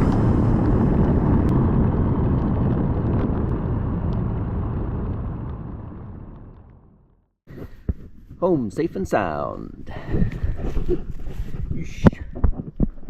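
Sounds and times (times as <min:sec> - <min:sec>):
motorcycle riding at speed: 0:00.0 - 0:07.2
wind rushing: 0:00.0 - 0:07.2.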